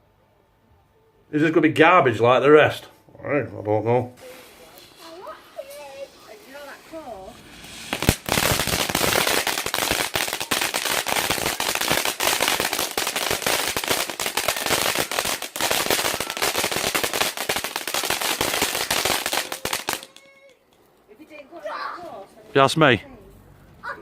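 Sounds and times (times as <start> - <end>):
firework crackling and popping: 4.2 - 20.6.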